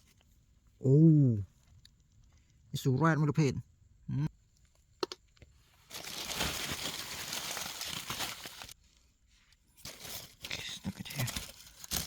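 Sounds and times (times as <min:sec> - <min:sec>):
dry debris crackling by hand: 0:05.9 - 0:08.8, 0:09.8 - 0:12.0.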